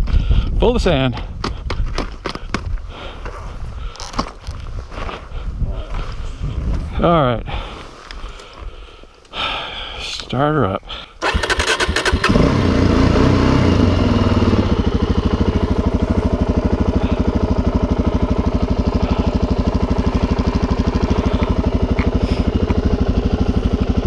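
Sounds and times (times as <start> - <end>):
motorcycle engine idling: 11.2 - 24.0.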